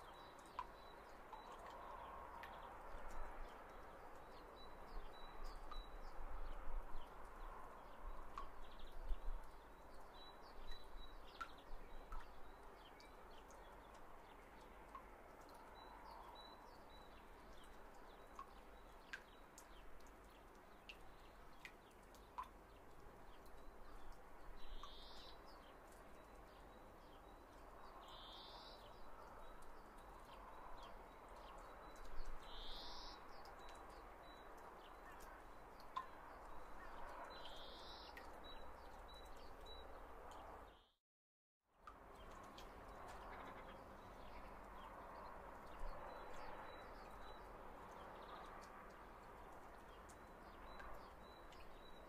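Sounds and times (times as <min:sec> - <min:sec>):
small ticks: 0:17.5 - 0:26.7.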